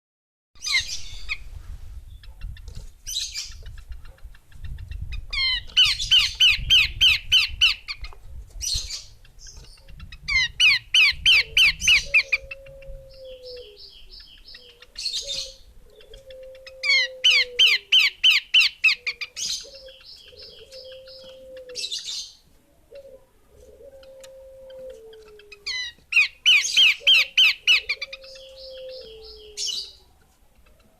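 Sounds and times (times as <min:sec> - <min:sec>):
bird calling down-slurred notes: 0:08.8 - 0:30.2.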